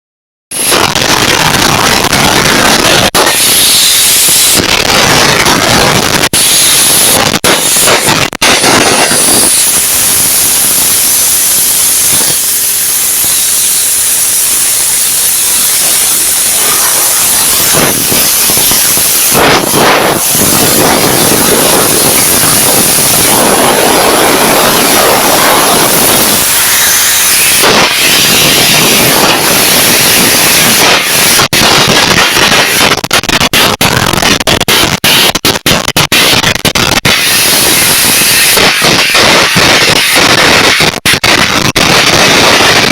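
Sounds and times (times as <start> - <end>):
compressed air rushing: 0.6 - 32.9
arc crackling: 0.6 - 42.9
sharp pops and snaps: 0.7 - 23.7, 24.8 - 42.9.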